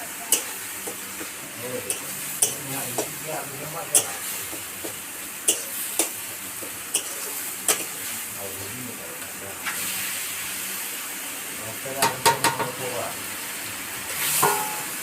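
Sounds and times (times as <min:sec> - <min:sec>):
curry sizzling in a pan: 0:00.0 - 0:15.0
spoon scraping and knocking pan: 0:12.0 - 0:12.8, 0:14.2 - 0:15.0.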